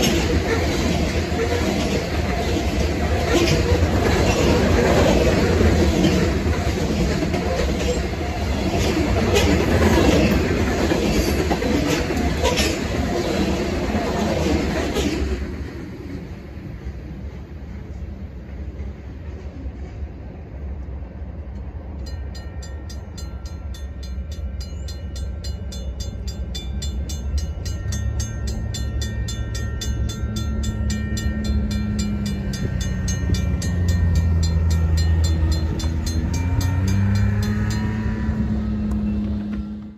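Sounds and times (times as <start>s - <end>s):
freight train rumbling past: 0.0s - 39.9s
crossing bell ringing: 21.8s - 39.9s
train horn: 34.0s - 39.8s.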